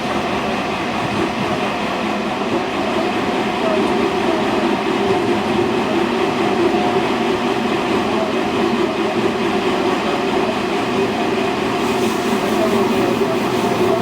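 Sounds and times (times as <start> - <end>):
train wheels and motors rumbling: 0.0 - 14.0.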